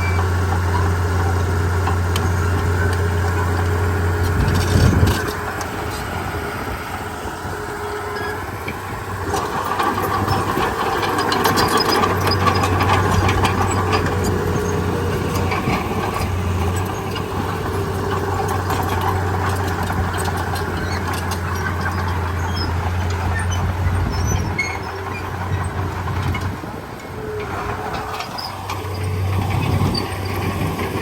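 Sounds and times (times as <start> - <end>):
bulldozer diesel engine running: 0.0 - 31.0
rattling metallic clatter: 8.1 - 26.8.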